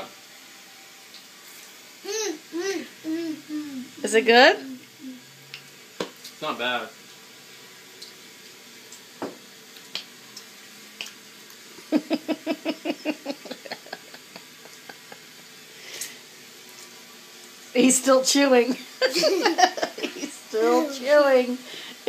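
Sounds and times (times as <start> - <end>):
person laughing: 11.8 - 15.5, 19.0 - 20.5.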